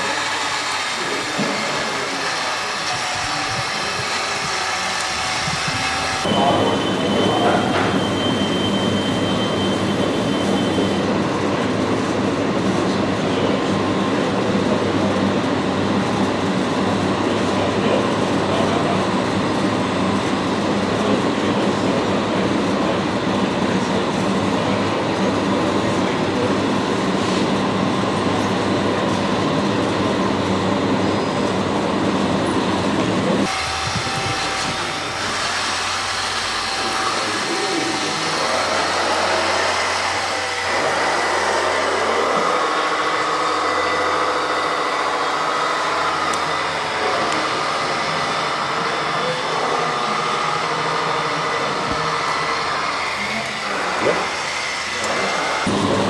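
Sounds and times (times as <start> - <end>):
mechanical whirring and grinding: 0.0 - 12.9, 26.7 - 56.0.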